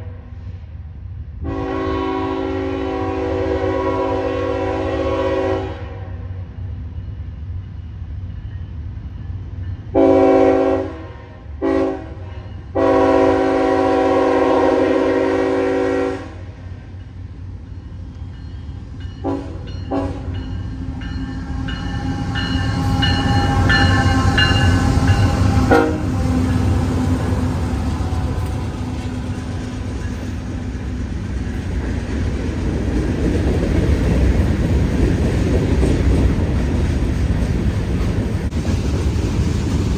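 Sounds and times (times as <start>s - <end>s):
locomotive air horn blasts: 1.4s - 6.3s, 10.0s - 16.6s, 19.2s - 20.3s, 23.1s - 26.4s
locomotive engines rumbling: 12.4s - 39.9s.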